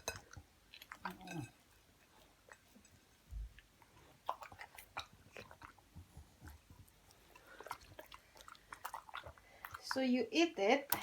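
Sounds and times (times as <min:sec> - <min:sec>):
dog chewing crunches: 0:03.4 - 0:10.2.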